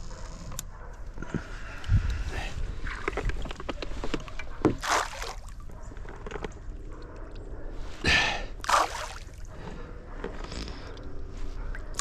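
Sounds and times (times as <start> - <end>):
knocks and clatter in a boat: 2.9 - 4.8
bait splashing into water: 4.8 - 5.6, 8.6 - 9.4.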